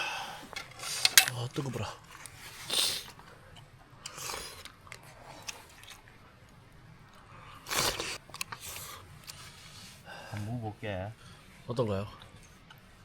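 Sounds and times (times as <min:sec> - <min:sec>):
utensils clicking: 0:00.5 - 0:01.7
breathy mouth sounds: 0:02.0 - 0:06.4, 0:07.1 - 0:10.6
chewing clicks: 0:04.0 - 0:09.4.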